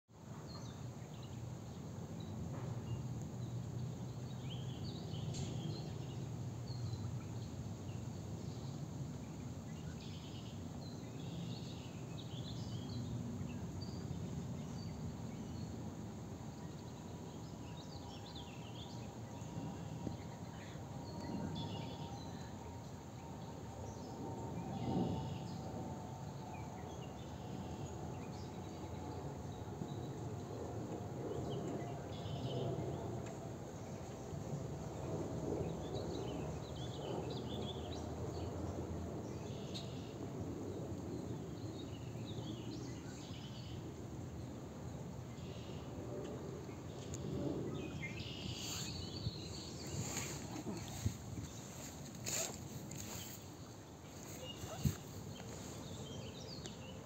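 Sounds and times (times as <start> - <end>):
bird chirps: 48.0 - 53.4.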